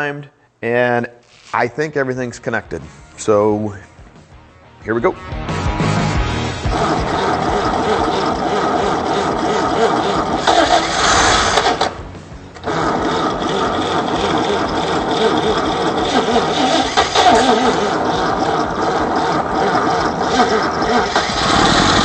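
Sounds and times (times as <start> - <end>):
engine firing up: 5.8 - 22.0
starter cranking engine: 6.7 - 12.0, 12.6 - 22.0.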